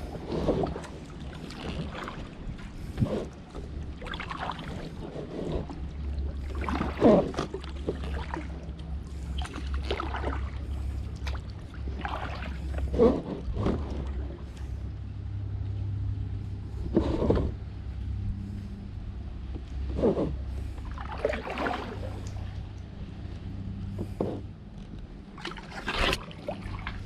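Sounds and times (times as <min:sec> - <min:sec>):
kayak paddle splashing: 0:00.0 - 0:14.9, 0:19.7 - 0:24.4, 0:25.2 - 0:27.0
steady low hum: 0:00.0 - 0:27.0.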